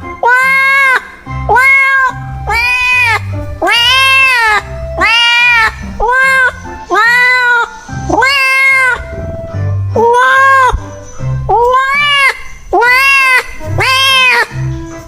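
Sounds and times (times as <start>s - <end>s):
cat meowing: 0.2s - 7.6s, 11.5s - 14.6s
background music with low beat: 1.1s - 15.0s.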